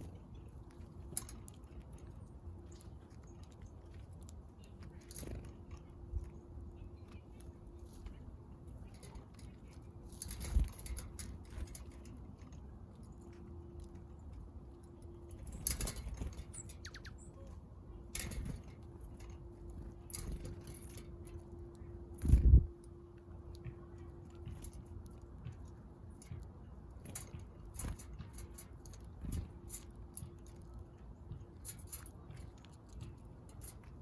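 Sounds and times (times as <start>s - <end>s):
birds landing and pecking: 0.0s - 34.0s
faint steady hum: 0.0s - 34.0s
bird wings fluttering: 22.2s - 22.7s.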